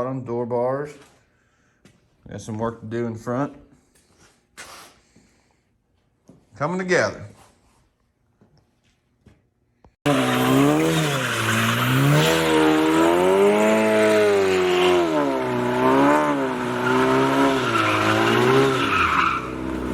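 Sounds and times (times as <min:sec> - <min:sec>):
race car engine revving: 0:10.0 - 0:19.9.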